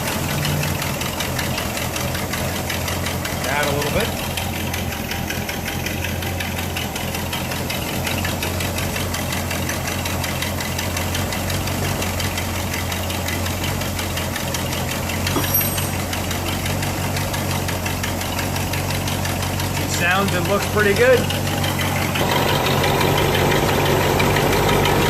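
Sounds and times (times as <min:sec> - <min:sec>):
car engine idling with ticking: 0:00.0 - 0:25.0.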